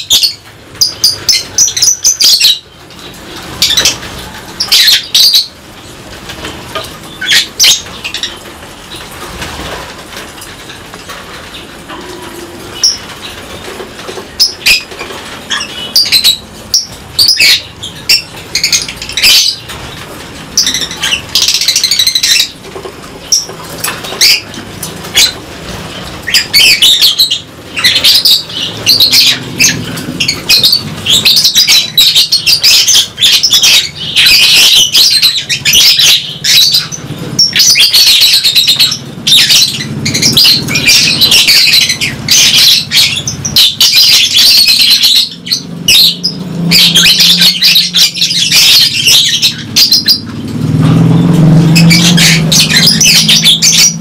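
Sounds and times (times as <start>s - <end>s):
birds chirping and screeching: 0.0s - 54.0s
wings flapping: 5.7s - 16.9s.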